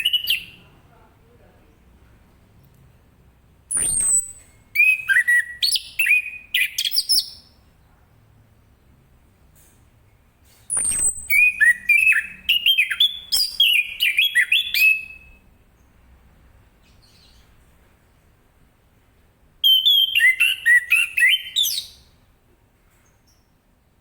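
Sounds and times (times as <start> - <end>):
thrush singing whistled notes: 3.7 - 7.5, 10.7 - 15.4, 19.6 - 22.1.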